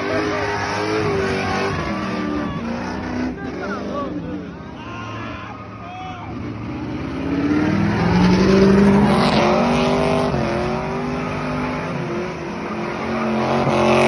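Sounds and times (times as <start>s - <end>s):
car engine revving hard: 0.0s - 4.4s, 6.3s - 14.0s.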